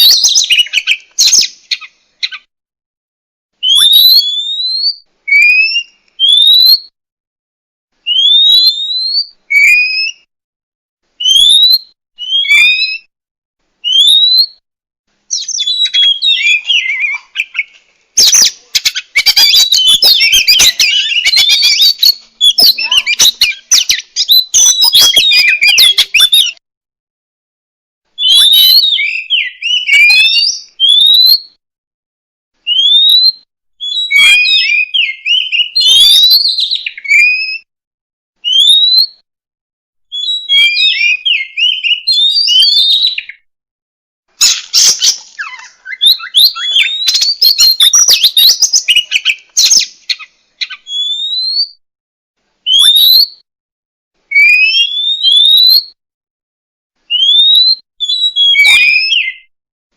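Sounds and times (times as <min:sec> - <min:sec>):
bird singing whistles and chirps: 0:00.0 - 0:02.5, 0:03.6 - 0:06.9, 0:08.0 - 0:10.3, 0:11.2 - 0:13.1, 0:13.8 - 0:14.6, 0:15.3 - 0:26.6, 0:28.2 - 0:31.6, 0:32.6 - 0:37.7, 0:38.4 - 0:39.2, 0:40.1 - 0:43.5, 0:44.4 - 0:51.8, 0:52.7 - 0:53.4, 0:54.3 - 0:56.0, 0:57.1 - 0:59.5.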